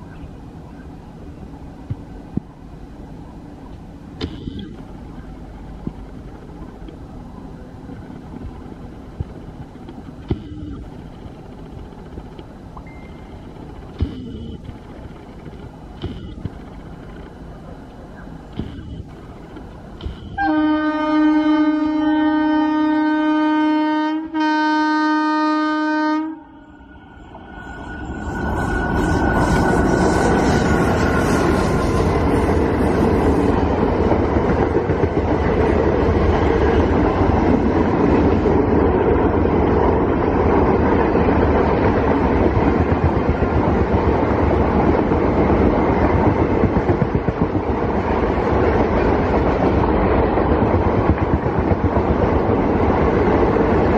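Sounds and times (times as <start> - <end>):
train coaches passing at speed: 0.0 - 53.9
locomotive air horn: 20.3 - 26.6.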